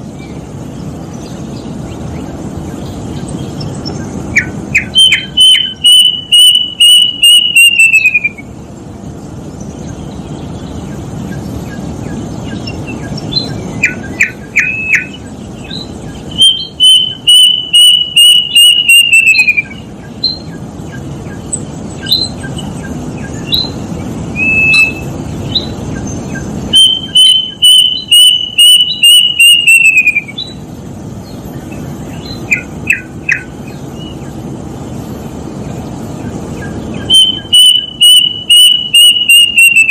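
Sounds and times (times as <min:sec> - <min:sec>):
bird chirps: 0:00.0 - 0:39.9
steady low hum: 0:00.0 - 0:39.9
cuckoo whistled notes: 0:04.4 - 0:08.5, 0:16.4 - 0:20.4, 0:24.4 - 0:25.1, 0:26.7 - 0:30.4, 0:37.1 - 0:39.9.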